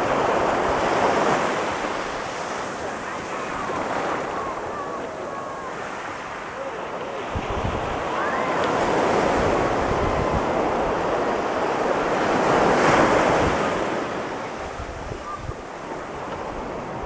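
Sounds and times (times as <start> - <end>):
ocean surf breaking: 0.0 - 17.0
wind noise on microphone: 7.2 - 13.9, 14.6 - 17.0.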